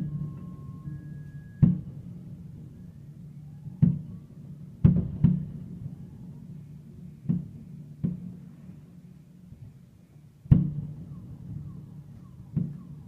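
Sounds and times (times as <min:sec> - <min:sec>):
fireworks booming: 0:03.8 - 0:06.0, 0:10.5 - 0:11.8.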